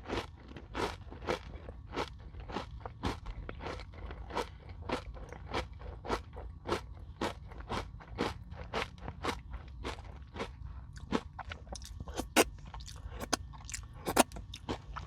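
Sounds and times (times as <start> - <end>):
crunchy chewing: 0.8 - 15.0.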